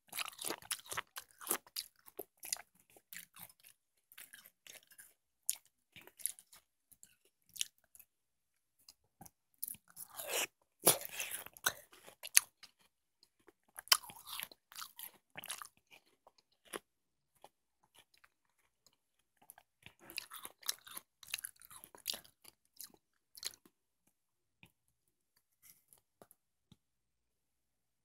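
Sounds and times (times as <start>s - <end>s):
chewing watermelon: 0.0s - 8.1s, 9.6s - 23.7s.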